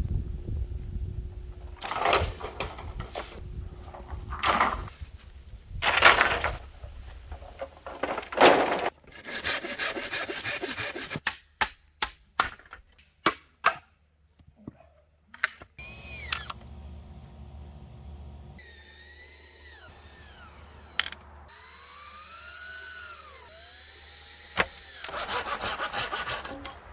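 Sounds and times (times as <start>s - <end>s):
rasping strokes on wood: 9.1s - 11.2s, 25.0s - 26.8s.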